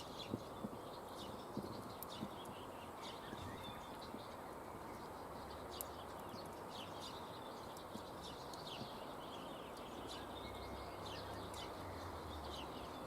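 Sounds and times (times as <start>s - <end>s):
campfire crackling and popping: 0.0s - 9.0s
small birds chirping: 0.0s - 13.0s.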